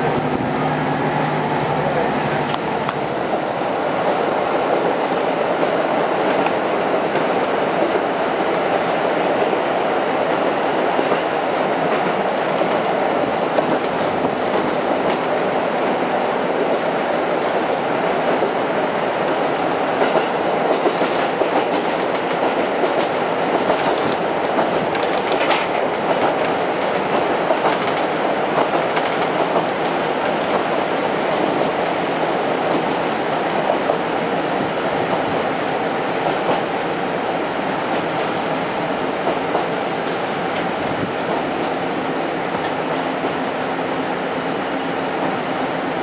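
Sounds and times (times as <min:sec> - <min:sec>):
railcar wheels rumbling: 0:00.0 - 0:46.0
rail-joint clicks: 0:02.4 - 0:04.2, 0:20.0 - 0:30.8, 0:39.2 - 0:41.8.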